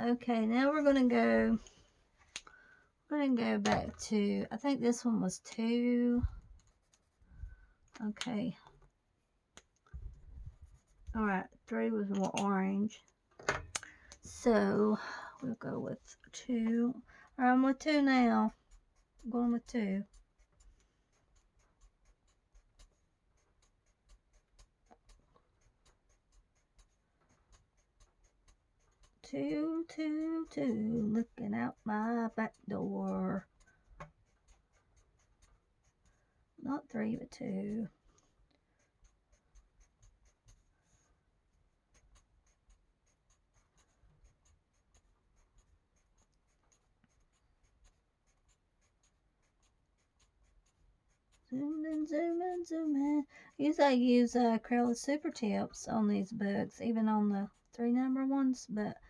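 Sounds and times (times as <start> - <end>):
marker tip scratching on paper: 16.4 - 58.9.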